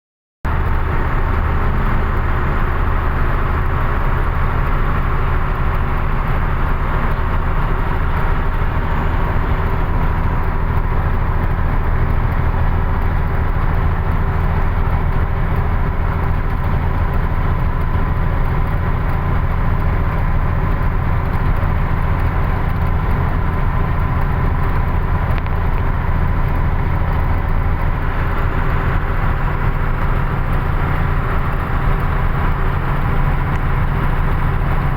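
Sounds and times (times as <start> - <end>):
road noise: 0.4 - 34.9
truck engine running: 0.4 - 34.9.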